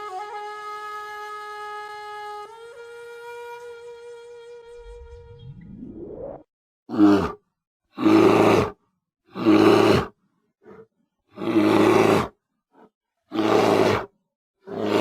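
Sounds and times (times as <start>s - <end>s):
bear roaring: 6.9s - 7.4s, 8.0s - 14.1s, 14.7s - 15.0s.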